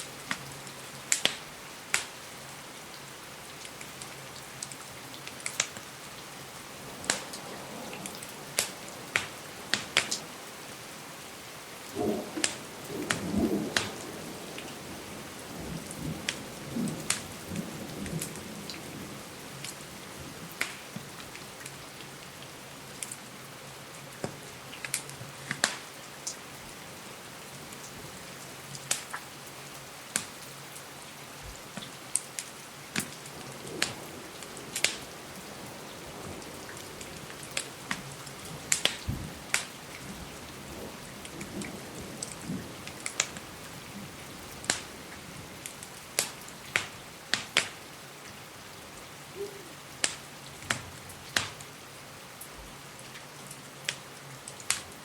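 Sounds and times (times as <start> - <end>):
rain hiss: 0.0 - 55.0
wood fire crackling: 1.1 - 2.2, 3.6 - 18.4, 20.5 - 21.7, 24.2 - 26.4, 28.7 - 29.2, 30.1 - 30.9, 31.5 - 47.8, 50.0 - 51.7, 53.9 - 55.0.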